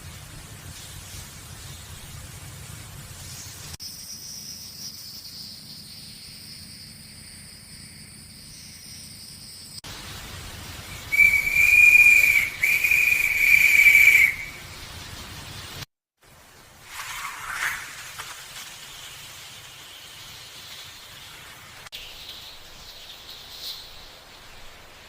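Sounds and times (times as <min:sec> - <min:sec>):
high-pitched whistle with hiss: 0:10.8 - 0:14.7.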